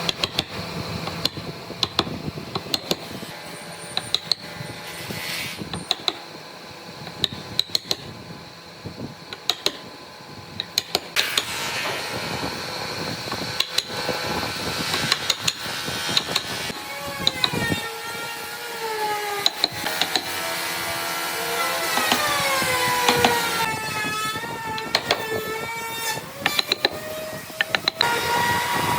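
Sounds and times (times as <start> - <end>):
power tool whining: 0.0 - 28.9
sharp taps and knocks: 1.1 - 3.1, 19.4 - 20.3, 24.9 - 25.3, 26.4 - 27.0.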